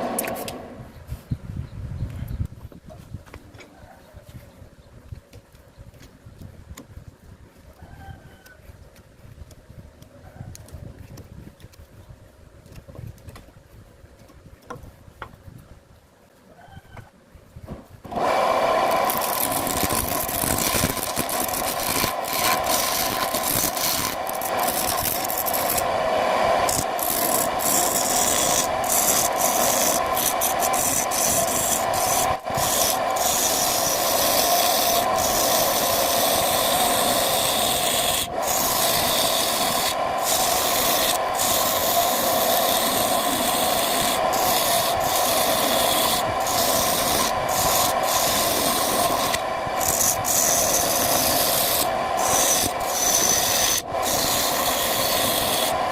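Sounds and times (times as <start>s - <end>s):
wood lathe rasping scrape: 18.1s - 55.9s.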